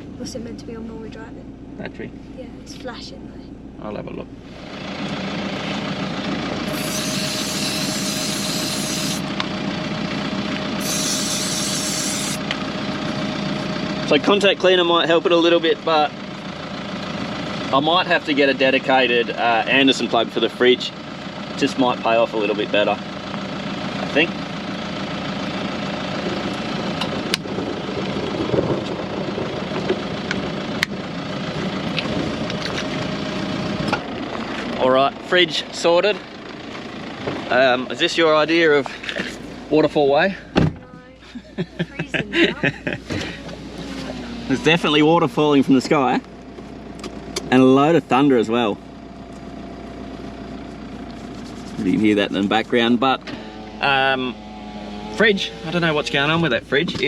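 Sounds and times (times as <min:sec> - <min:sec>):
vehicle engine idling: 0:00.0 - 0:57.0
aerosol can spraying: 0:10.8 - 0:12.4.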